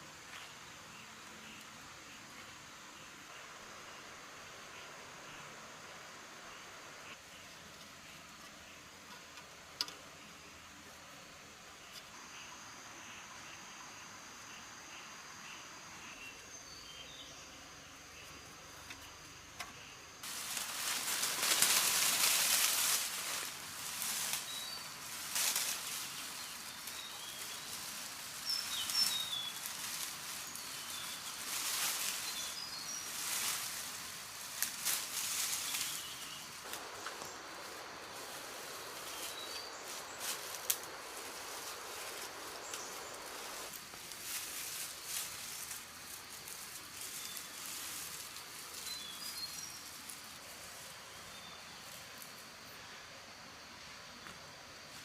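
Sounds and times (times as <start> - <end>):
small birds chirping: 0.0 - 53.0
rain pattering on leaves: 20.2 - 50.8
rustling noise: 20.2 - 51.1
bird chirping: 23.3 - 25.1, 25.7 - 33.6.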